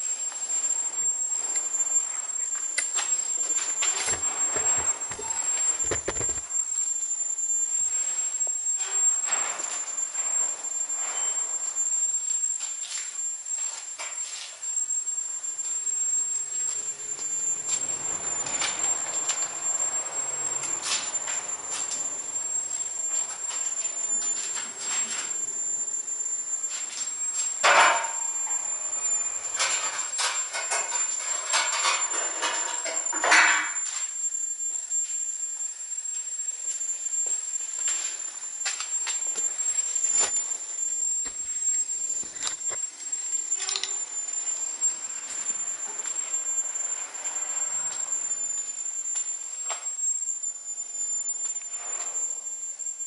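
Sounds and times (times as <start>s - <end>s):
steady high-pitched whine: 0.0s - 53.0s
hand tools scraping metal: 3.5s - 6.4s.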